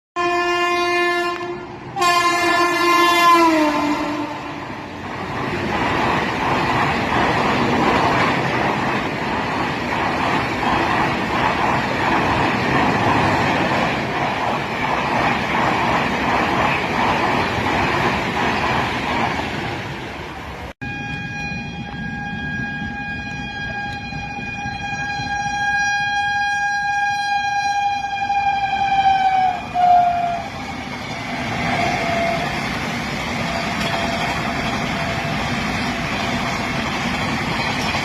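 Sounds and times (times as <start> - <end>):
locomotive horn blasts: 0.2 - 4.6, 20.8 - 30.6, 31.7 - 32.7
train coaches rumbling past: 0.2 - 38.0.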